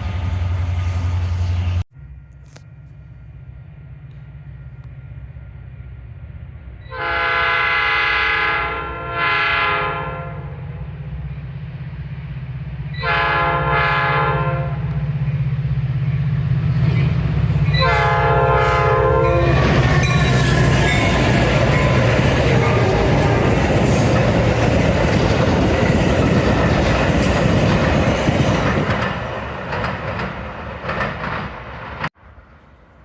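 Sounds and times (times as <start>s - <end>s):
train wheel and rail noise: 0.0s - 33.0s
train horn: 6.8s - 10.7s, 12.9s - 15.0s, 17.7s - 24.2s.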